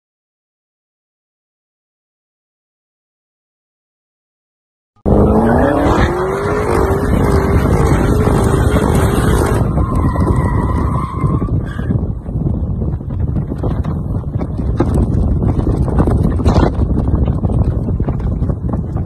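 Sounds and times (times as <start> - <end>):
car engine revving: 5.0 - 11.0
road noise: 5.0 - 19.0
high squeal: 9.2 - 11.9.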